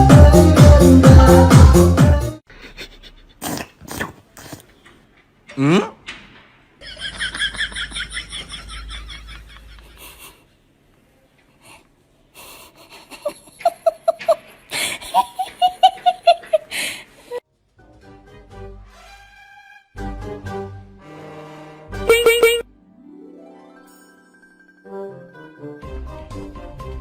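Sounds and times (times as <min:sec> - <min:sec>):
pulsed laughter: 0:06.8 - 0:10.4, 0:12.8 - 0:16.8.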